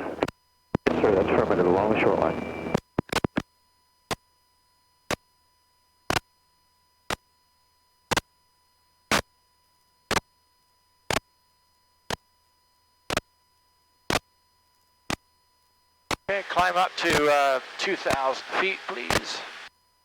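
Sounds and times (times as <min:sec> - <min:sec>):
sharp clicks in intercom audio: 0:17.8 - 0:19.7.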